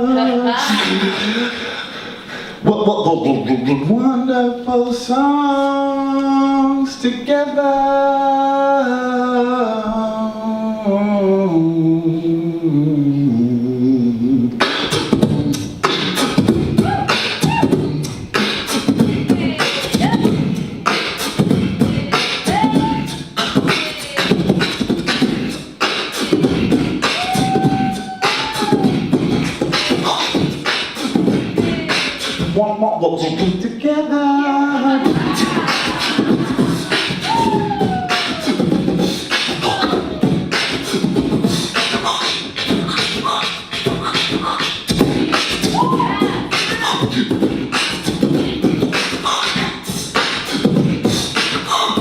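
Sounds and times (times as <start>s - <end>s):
person singing: 0.0s - 2.0s, 2.6s - 52.0s
beatboxing: 0.0s - 7.6s, 10.9s - 52.0s.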